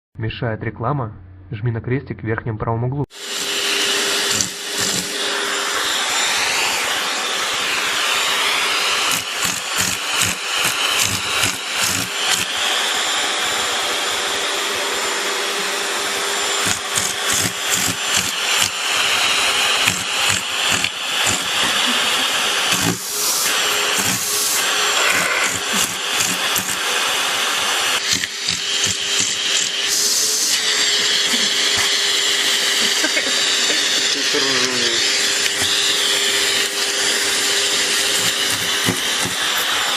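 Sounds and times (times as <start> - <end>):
vacuum cleaner running: 3.1 - 39.9.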